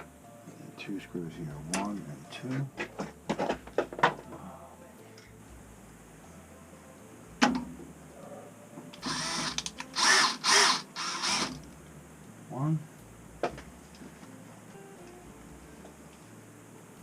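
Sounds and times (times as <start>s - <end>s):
power drill driving screws: 9.0s - 11.6s.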